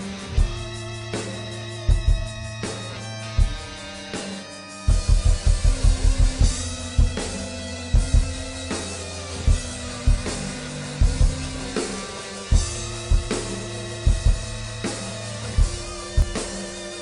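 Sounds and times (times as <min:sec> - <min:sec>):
drum kit playing: 0:00.0 - 0:17.0
live instrumental band music: 0:00.0 - 0:17.0.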